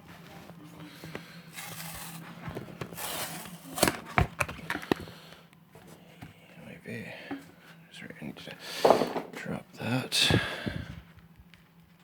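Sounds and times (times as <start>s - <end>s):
steady low hum: 0.0s - 12.0s
stiff plastic rubbing and scraping: 1.6s - 5.2s.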